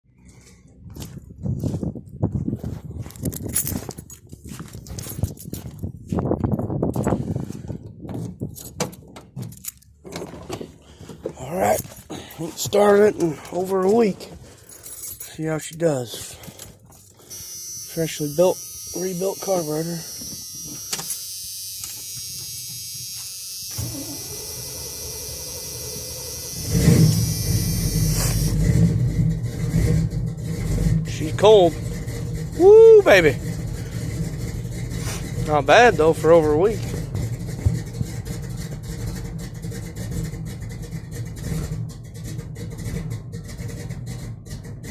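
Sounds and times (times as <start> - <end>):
starter motor whine: 17.3 - 29.4
engine rumble starting: 23.7 - 44.9.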